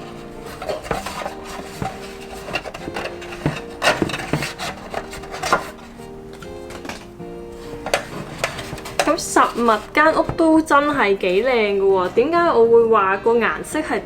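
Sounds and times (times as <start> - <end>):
hands rubbing and scraping packaging: 0.0 - 10.2
quiet background music: 0.0 - 14.0.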